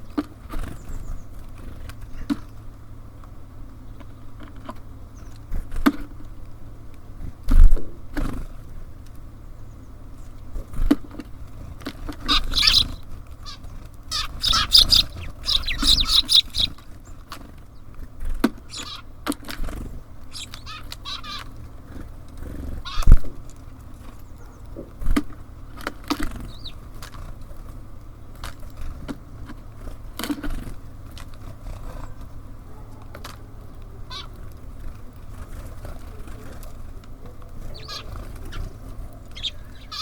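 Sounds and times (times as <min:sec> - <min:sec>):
steady low hum: 0:09.5 - 0:24.2
birds pecking and tapping: 0:10.2 - 0:40.0
harsh chattering bird calls: 0:12.1 - 0:23.1, 0:26.2 - 0:27.0, 0:34.0 - 0:34.4, 0:37.5 - 0:40.0.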